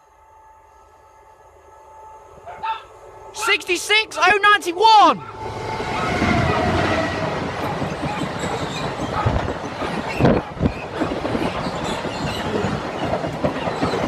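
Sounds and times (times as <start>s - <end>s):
train wheels clattering over rails: 5.8s - 14.0s.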